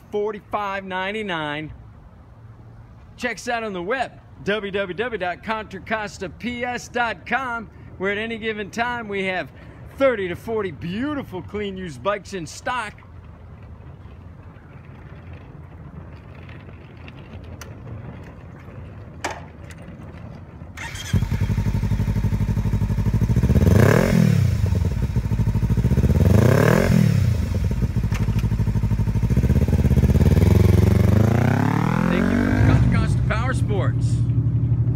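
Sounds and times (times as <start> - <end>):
motorcycle engine revving: 20.8 - 34.9.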